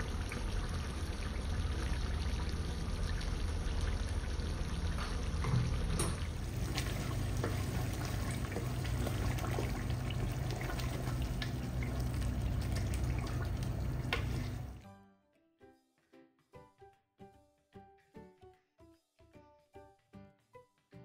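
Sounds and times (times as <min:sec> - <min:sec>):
curry bubbling in a pot: 0:00.0 - 0:14.8
steady low hum: 0:00.0 - 0:14.8
wooden spoon stirring: 0:06.4 - 0:14.8.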